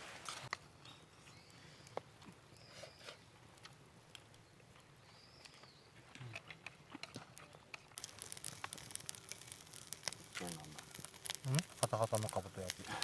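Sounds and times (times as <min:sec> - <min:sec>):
dense fast crackling: 0:08.0 - 0:13.0.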